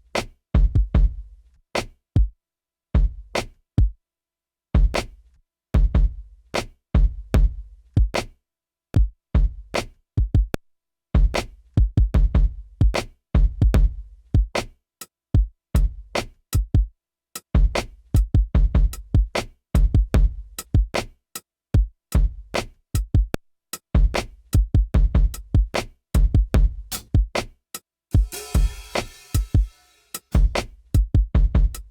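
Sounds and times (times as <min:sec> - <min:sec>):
drum machine beat: 0:11.2 - 0:14.6, 0:15.4 - 0:21.0, 0:23.0 - 0:27.5, 0:28.1 - 0:31.9.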